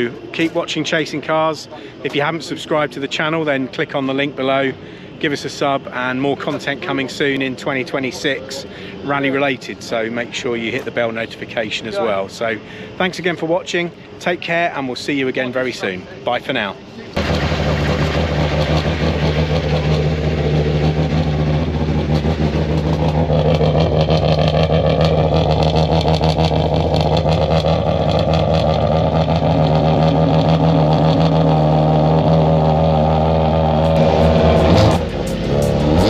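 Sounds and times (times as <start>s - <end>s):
car engine idling: 16.9s - 36.0s.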